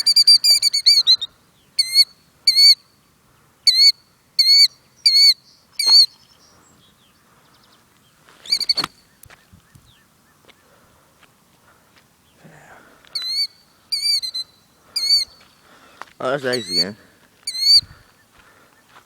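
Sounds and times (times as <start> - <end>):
bird giving sharp alarm calls: 0.0 - 2.8, 13.1 - 15.4, 16.2 - 18.0.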